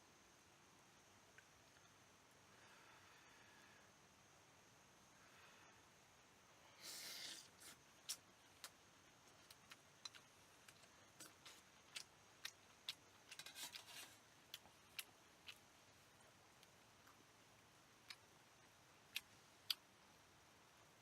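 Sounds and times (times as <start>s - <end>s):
scratchy rustle: 13.3s - 14.3s.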